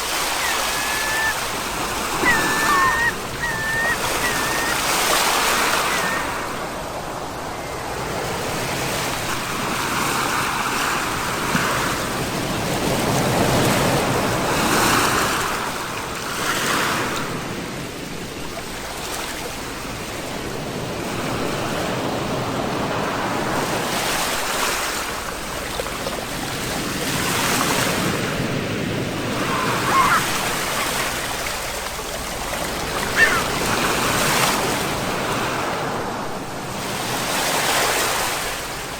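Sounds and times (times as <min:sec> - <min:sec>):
sea waves breaking on shore: 0:00.0 - 0:38.9
short high call: 0:00.1 - 0:06.4.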